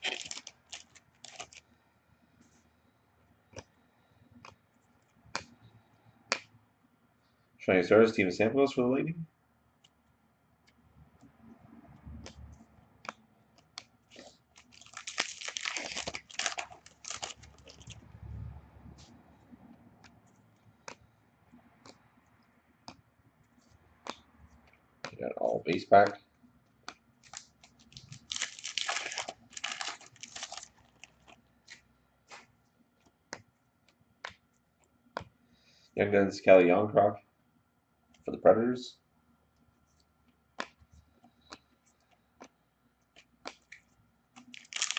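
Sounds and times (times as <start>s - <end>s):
foil wrapper crinkling and tearing: 0.0s - 1.6s, 14.1s - 18.0s, 27.2s - 31.4s, 44.4s - 44.9s.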